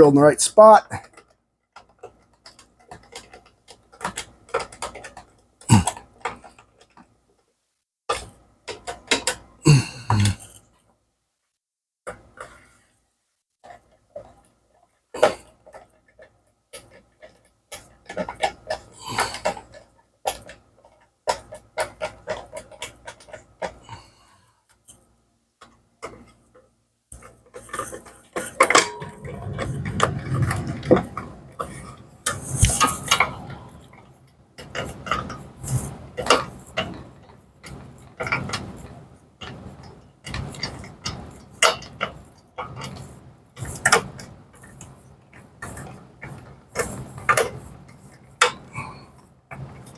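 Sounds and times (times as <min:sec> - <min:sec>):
tools and wooden parts rattling: 0:01.0 - 0:07.1, 0:15.2 - 0:23.8, 0:25.6 - 0:49.9.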